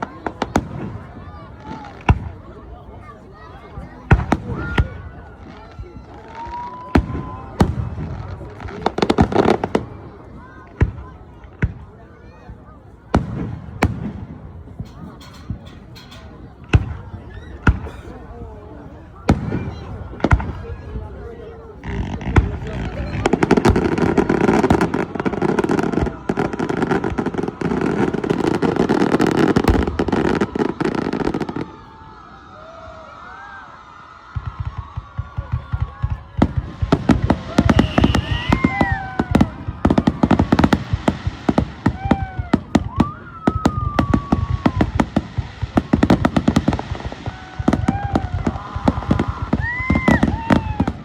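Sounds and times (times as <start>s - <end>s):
fireworks bursting: 19.0s - 32.0s, 34.3s - 51.0s.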